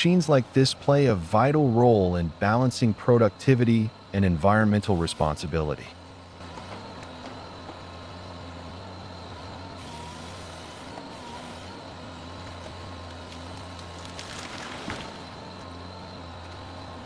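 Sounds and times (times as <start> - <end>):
machine engine running: 3.4 - 17.0.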